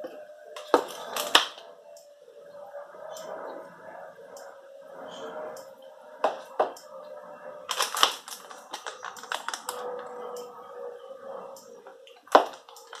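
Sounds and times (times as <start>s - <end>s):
hard objects clicking and tapping: 0.6s - 1.6s, 7.7s - 10.5s, 11.9s - 13.0s.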